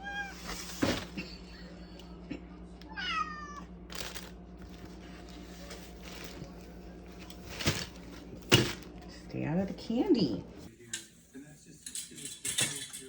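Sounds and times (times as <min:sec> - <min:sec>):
cat meowing: 0:00.0 - 0:00.5, 0:02.9 - 0:03.7.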